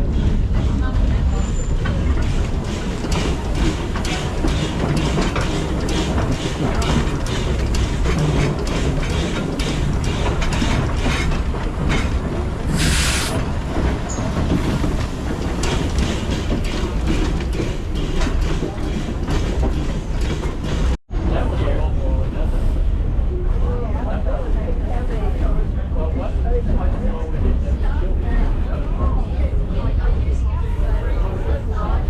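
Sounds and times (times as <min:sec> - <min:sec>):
train wheels rattling on rails: 0:00.0 - 0:21.0
steam hiss: 0:12.7 - 0:13.4.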